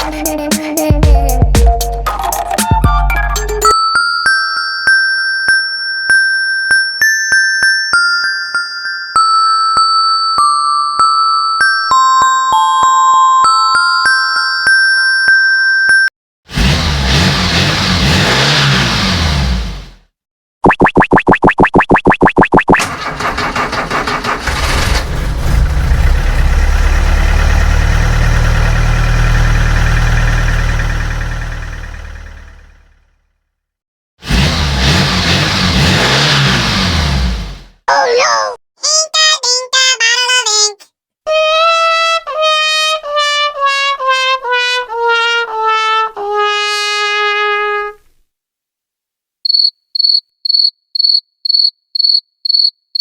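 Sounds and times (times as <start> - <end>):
deep truck engine rumble: 22.8 - 33.2
trumpet-like brass tune: 41.3 - 48.0.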